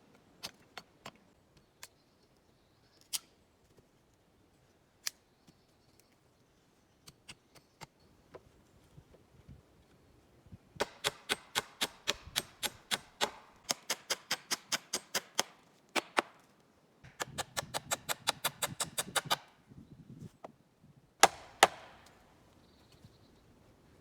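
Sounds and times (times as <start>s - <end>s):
hand tool knocking on wood: 21.2s - 22.0s.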